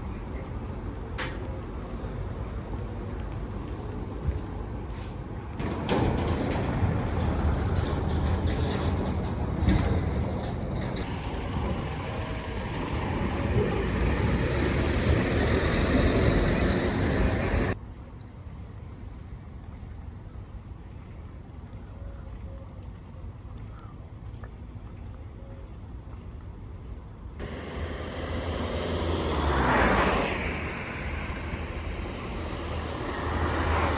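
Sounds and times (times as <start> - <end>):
heavy vehicle engine running: 0.0 - 17.8, 27.4 - 33.9.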